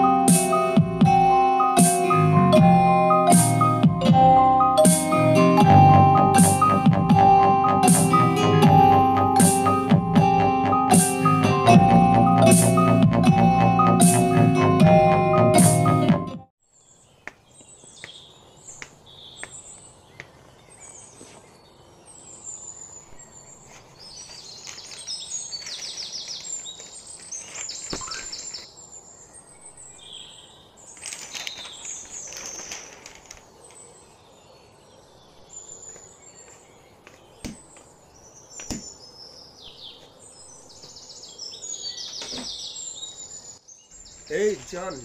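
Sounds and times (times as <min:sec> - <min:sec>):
songbirds chirping and trilling: 0:00.0 - 0:45.0
outdoor background noise: 0:16.6 - 0:45.0.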